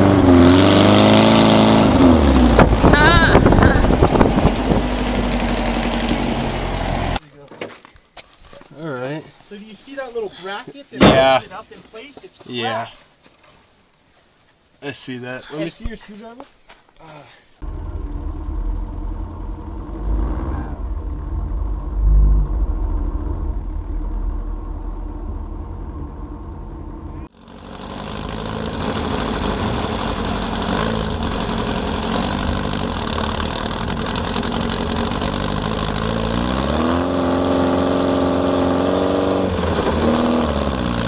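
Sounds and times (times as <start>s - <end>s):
car engine rumbling and revving: 0.0s - 7.2s, 17.6s - 41.0s
rushing wind noise: 2.3s - 5.3s.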